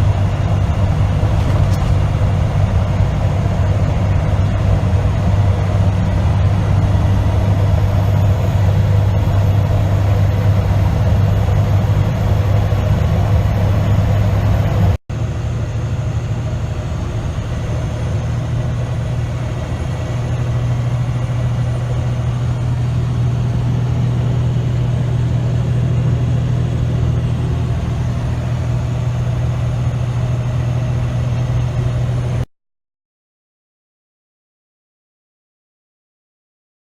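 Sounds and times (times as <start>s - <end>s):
road noise: 0.0s - 32.5s
truck engine drone: 0.0s - 32.5s.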